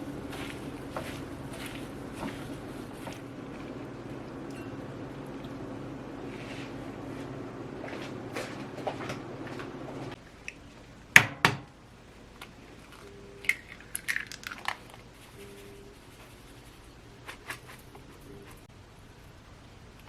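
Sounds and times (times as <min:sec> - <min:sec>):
light crinkling: 0:00.0 - 0:10.9
steady low hum: 0:00.0 - 0:14.0.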